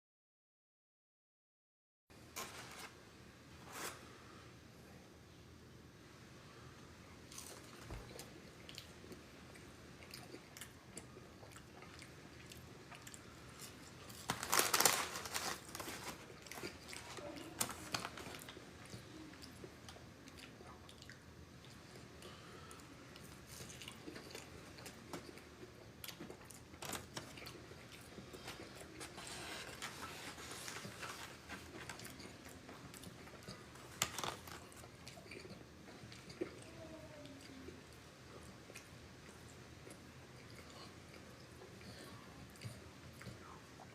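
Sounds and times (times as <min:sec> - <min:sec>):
person chewing crunchy food: 0:07.3 - 0:22.5, 0:23.2 - 0:36.6.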